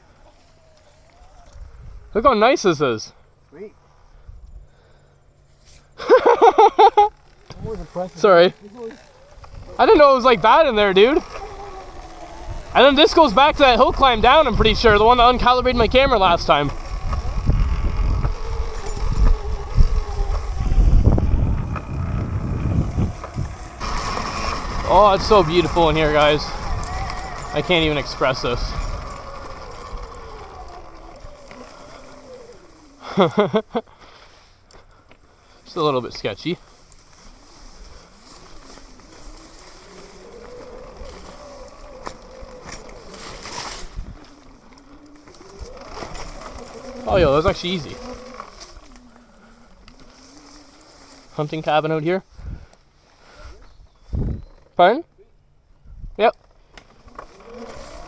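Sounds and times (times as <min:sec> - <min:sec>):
electric motor whine: 0:00.0 - 0:02.2, 0:07.0 - 0:33.8, 0:35.1 - 0:52.6, 0:56.5 - 0:58.0
wind buffeting microphone: 0:01.3 - 0:02.1, 0:08.6 - 0:32.9, 0:37.6 - 0:50.5, 0:52.3 - 0:52.7, 0:53.6 - 0:54.6, 0:55.8 - 0:56.2.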